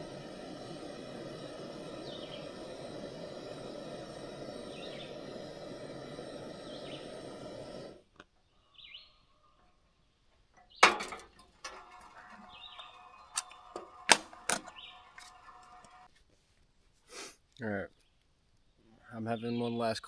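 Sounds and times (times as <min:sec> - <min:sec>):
small birds chirping: 0:00.0 - 0:11.2, 0:11.9 - 0:15.9.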